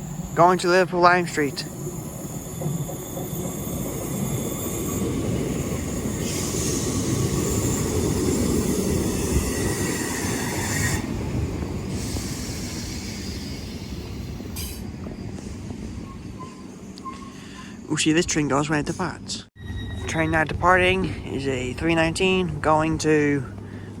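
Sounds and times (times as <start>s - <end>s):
electric train slowing: 0.0s - 17.9s, 19.6s - 24.0s
high squeal: 19.6s - 20.6s.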